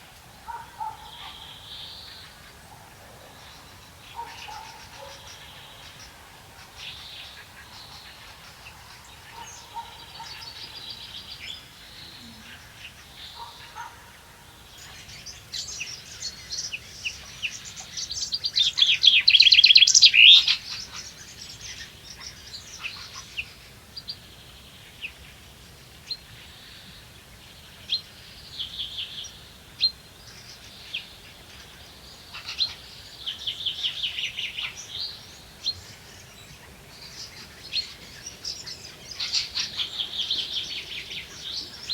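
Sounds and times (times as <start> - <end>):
songbirds chirping and trilling: 0.0 - 41.9.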